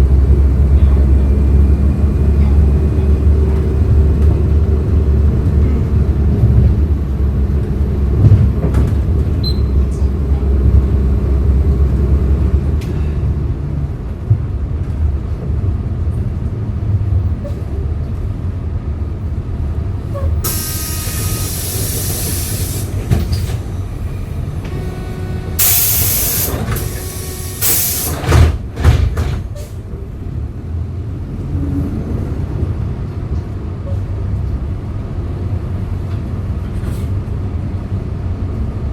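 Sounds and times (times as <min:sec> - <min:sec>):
bus engine running: 0:00.0 - 0:38.9
compressed air hiss: 0:20.5 - 0:23.0, 0:25.6 - 0:28.2.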